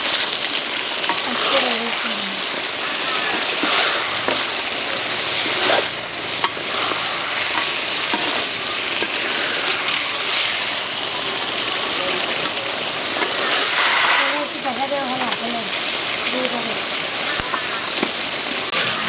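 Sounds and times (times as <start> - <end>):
fish sizzling in oil: 0.0 - 19.0
metal spatula scraping pan: 1.0 - 10.8, 12.2 - 15.6.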